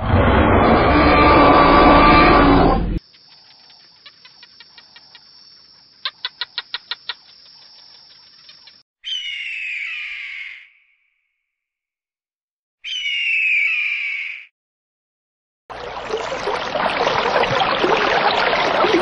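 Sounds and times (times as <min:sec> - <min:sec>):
bird chirping: 0:05.9 - 0:10.9.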